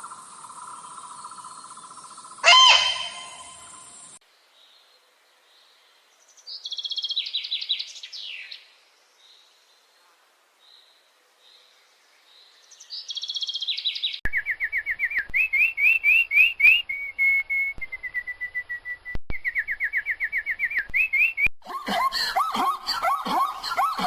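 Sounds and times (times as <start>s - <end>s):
songbird whistling: 2.4s - 3.9s, 13.1s - 21.5s.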